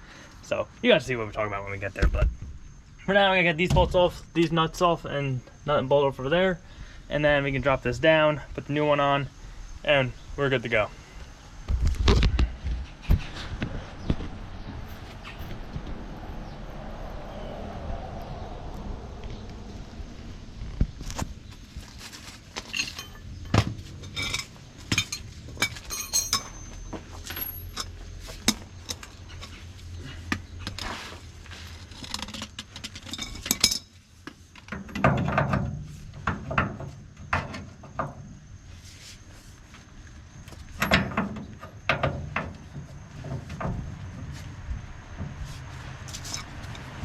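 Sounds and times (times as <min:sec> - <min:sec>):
metal hand tools clinking: 0:22.6 - 0:29.6.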